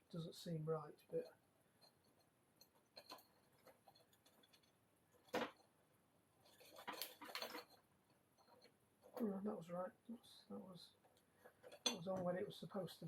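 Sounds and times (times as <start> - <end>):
metal parts clicking and rattling: 1.8 - 5.7, 6.4 - 9.2.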